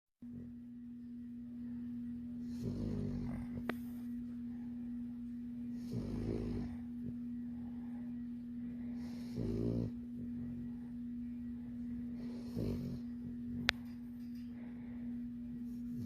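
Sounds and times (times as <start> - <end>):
steady hum: 0.2 - 16.0
puppy snoring: 2.4 - 4.0, 5.7 - 7.2, 8.8 - 10.9, 12.0 - 14.0.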